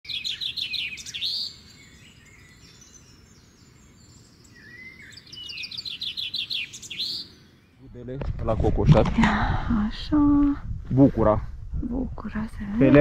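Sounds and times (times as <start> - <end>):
songbird singing: 0.0 - 8.2
outdoor background noise: 0.0 - 13.0.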